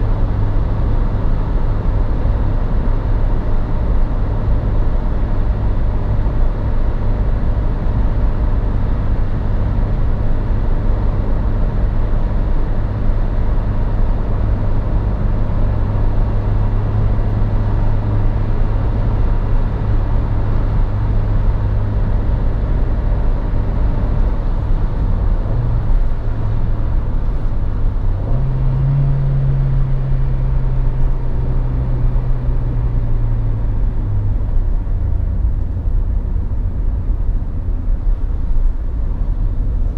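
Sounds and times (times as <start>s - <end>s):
car engine running: 0.0s - 39.9s
driving noise drone: 0.0s - 39.9s.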